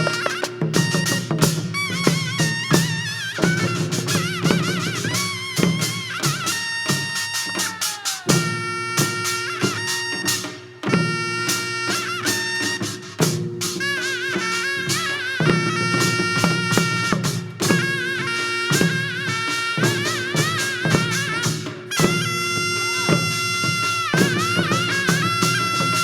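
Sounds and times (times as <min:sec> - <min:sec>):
reedy wind melody with vibrato: 0:00.0 - 0:26.0
regular drum strokes: 0:00.0 - 0:26.0.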